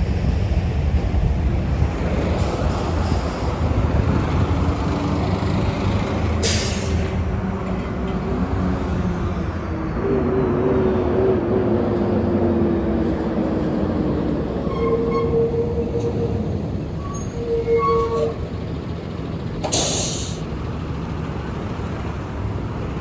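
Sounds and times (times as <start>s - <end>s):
bus engine and tyre rumble: 0.0s - 23.0s
heavy road traffic: 0.0s - 23.0s
air brake hiss: 6.4s - 7.1s, 19.6s - 20.5s.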